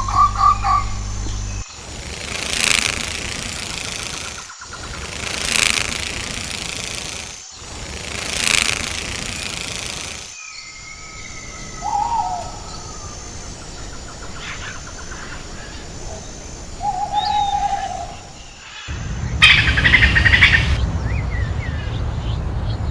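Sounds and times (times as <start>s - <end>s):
bird calling: 0.0s - 1.8s, 10.4s - 20.8s
outdoor background noise: 0.0s - 22.9s
loud rushes of noise: 18.4s - 22.9s.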